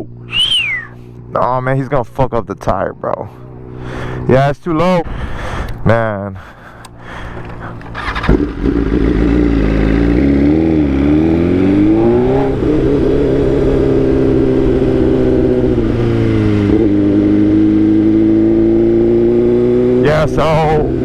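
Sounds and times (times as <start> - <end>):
motorcycle engine running: 6.7 - 21.0.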